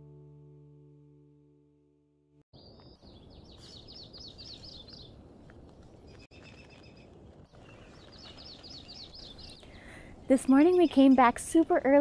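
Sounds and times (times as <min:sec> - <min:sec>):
songbird singing: 0:02.5 - 0:12.0.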